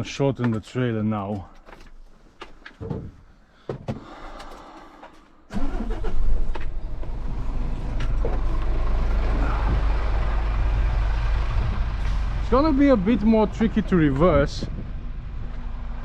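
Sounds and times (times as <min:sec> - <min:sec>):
truck engine starting and idling: 0:05.5 - 0:16.0.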